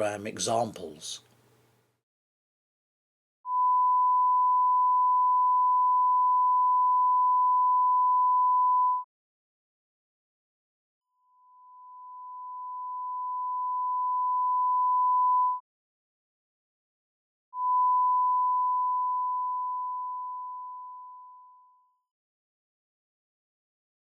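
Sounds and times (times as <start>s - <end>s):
sine wave test tone: 3.5s - 9.1s, 11.1s - 15.6s, 17.6s - 22.1s.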